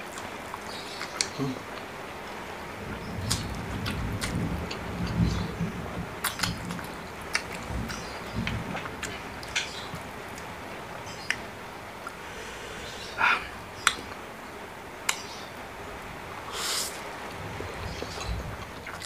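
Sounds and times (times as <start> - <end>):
hissing breath drawn in: 12.2 - 13.6, 16.5 - 17.0.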